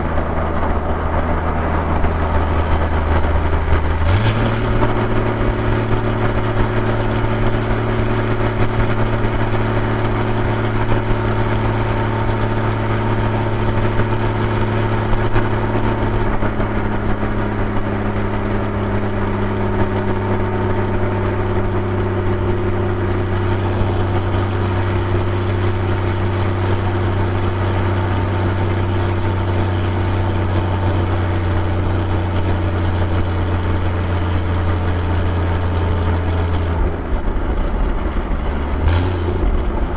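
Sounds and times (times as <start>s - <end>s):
car engine and exhaust drone: 0.0s - 39.9s.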